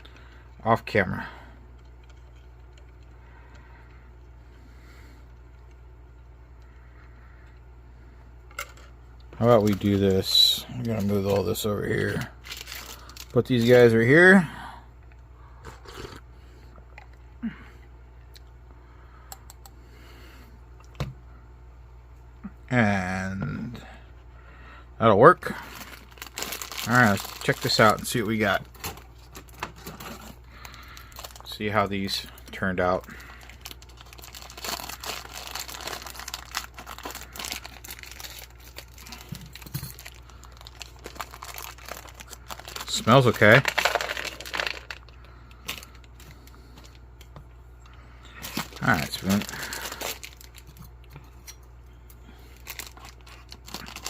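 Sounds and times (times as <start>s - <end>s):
steady low hum: 0.0s - 54.0s
packets handled on a table: 10.8s - 13.8s, 33.0s - 47.0s, 48.4s - 50.9s, 52.5s - 54.0s.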